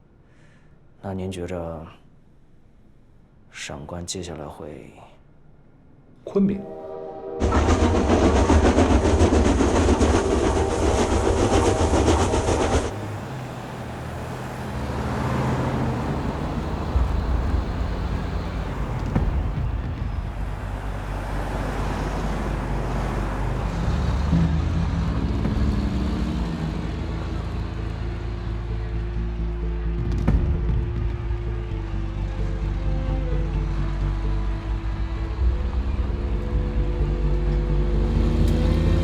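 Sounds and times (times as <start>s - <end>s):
train clattering: 7.4s - 28.5s
low background music: 16.9s - 39.0s.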